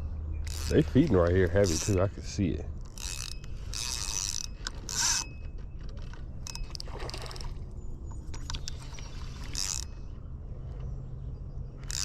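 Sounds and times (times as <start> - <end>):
fishing reel clicks: 0.4 - 7.5, 8.3 - 10.0, 11.8 - 12.0
water splashing: 6.8 - 7.7.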